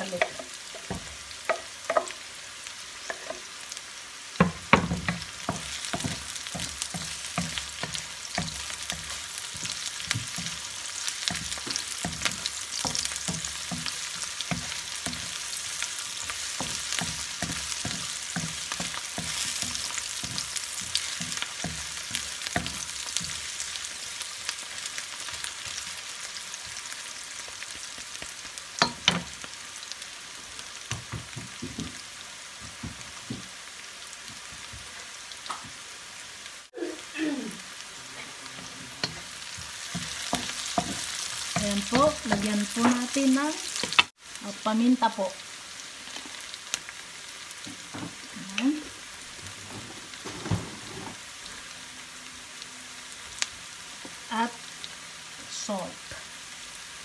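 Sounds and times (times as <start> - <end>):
aromatics sizzling in hot oil: 0.0 - 57.0
wooden spatula scraping and knocking: 0.1 - 2.2, 4.4 - 15.6, 49.4 - 51.3.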